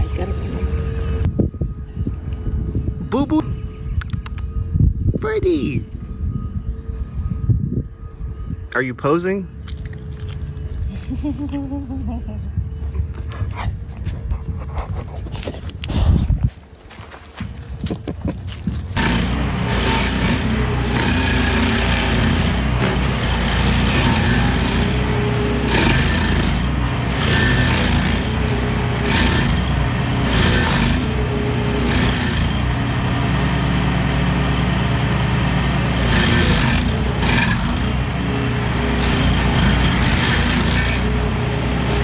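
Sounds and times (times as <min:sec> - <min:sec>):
small gasoline engine running: 0:19.0 - 0:42.0.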